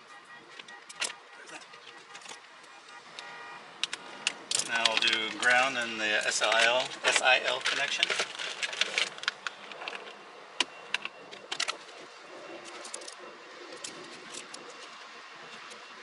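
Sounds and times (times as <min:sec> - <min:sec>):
clicks and taps on wiring: 0:00.5 - 0:05.5.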